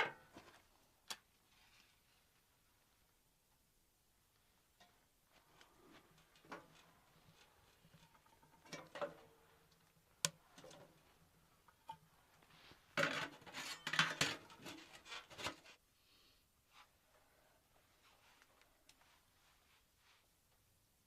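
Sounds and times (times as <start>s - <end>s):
cookware clinking and clattering: 8.0s - 9.4s, 13.0s - 14.9s.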